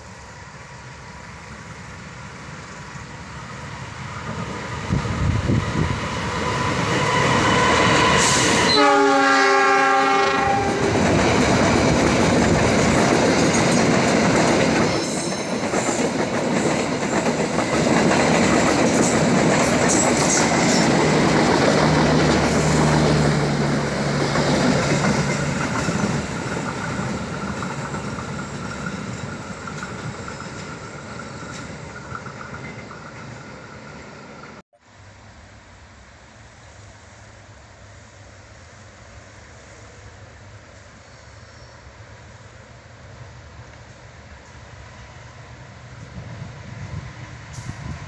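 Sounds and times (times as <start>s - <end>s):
diesel locomotive horn: 6.4s - 11.0s
train wheel clatter on rails: 10.5s - 34.6s.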